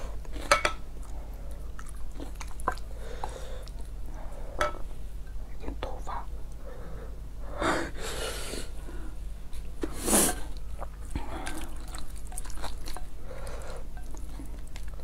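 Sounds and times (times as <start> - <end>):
wet chewing of noodles: 0.0 - 4.4, 9.9 - 15.0.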